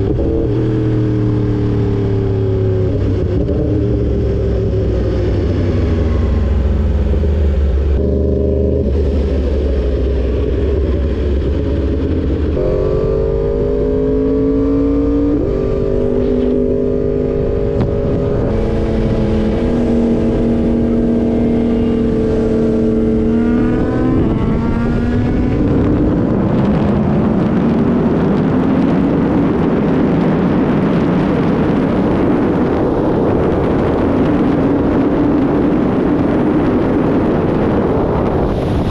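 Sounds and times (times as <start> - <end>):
motorcycle engine revving: 0.0 - 38.9
wind rushing over microphone: 0.0 - 38.9.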